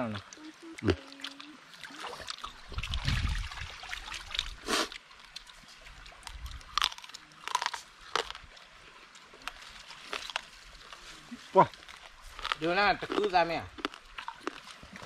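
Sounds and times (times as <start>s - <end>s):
crunching food: 6.3s - 8.5s, 9.1s - 15.0s
person biting and chewing: 6.5s - 8.5s, 9.4s - 11.0s, 11.8s - 15.0s.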